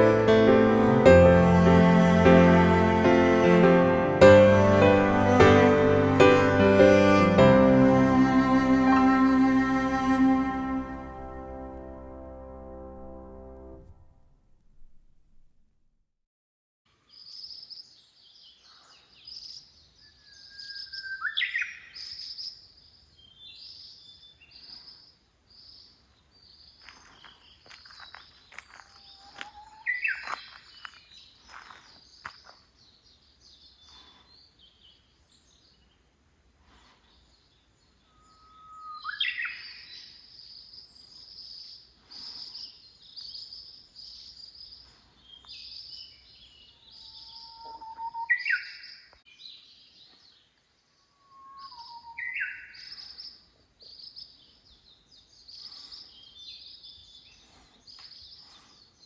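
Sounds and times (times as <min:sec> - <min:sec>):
lower louder bird calls: 0:17.1 - 0:59.0
high bird chirps: 0:38.0 - 0:40.2, 0:45.3 - 0:49.1, 0:51.1 - 0:54.4.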